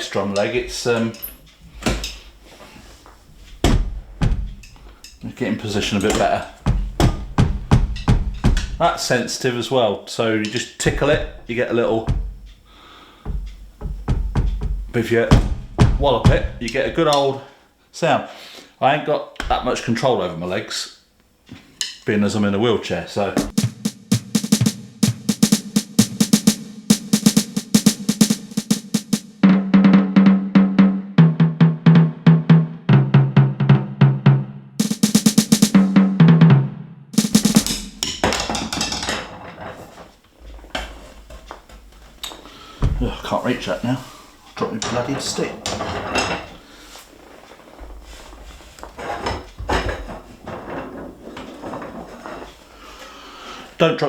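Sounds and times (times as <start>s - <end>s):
rustling and shuffling: 0.0s - 9.8s, 10.4s - 17.4s, 21.4s - 29.2s, 37.2s - 53.9s
electronic tom rolls: 3.2s - 9.4s, 10.8s - 17.2s, 23.4s - 34.2s, 34.8s - 39.1s, 42.8s - 44.1s
electronic snare and cymbal hits: 3.4s - 9.4s, 10.4s - 17.2s, 23.4s - 33.9s, 34.8s - 39.0s.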